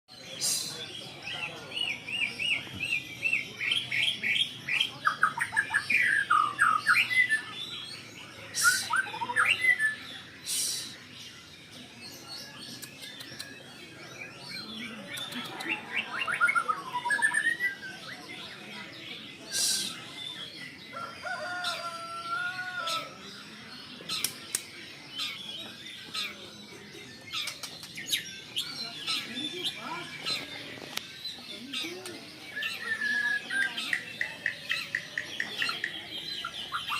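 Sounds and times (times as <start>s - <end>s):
bird harsh hissing notes: 0.2s - 1.0s, 8.4s - 9.0s, 10.2s - 11.2s, 19.4s - 20.2s
songbird singing varied song: 0.2s - 36.9s
bird clicks and chirps: 12.5s - 13.8s, 14.8s - 16.0s, 24.0s - 25.4s, 27.2s - 29.3s, 33.5s - 36.9s.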